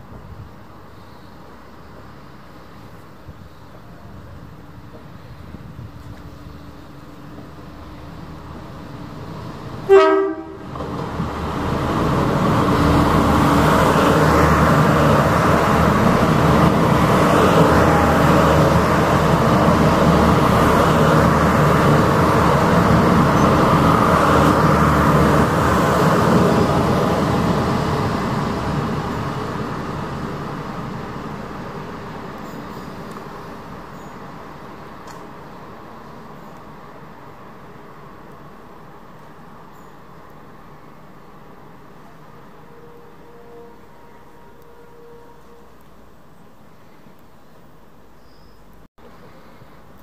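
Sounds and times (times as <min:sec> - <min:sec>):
train rushing on rails: 0:00.0 - 0:50.0
train horn blast: 0:09.8 - 0:10.7, 0:42.4 - 0:45.9.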